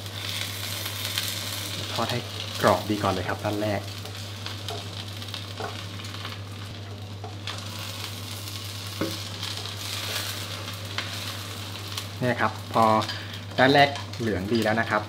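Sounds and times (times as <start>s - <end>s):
pancake sizzling in oil: 0.0s - 15.0s
spatula tapping and scraping: 4.0s - 5.0s, 5.6s - 5.8s.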